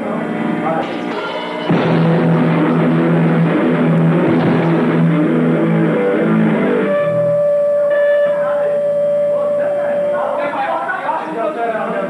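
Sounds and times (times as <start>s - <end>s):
distorted electric guitar riff: 0.0s - 10.6s
held high ringing tone: 0.8s - 5.2s.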